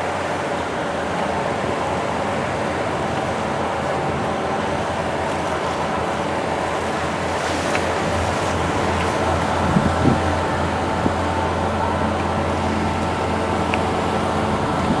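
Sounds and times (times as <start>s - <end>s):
steady engine drone: 0.0s - 15.0s
waves: 0.0s - 15.0s
wind rushing: 1.3s - 15.0s.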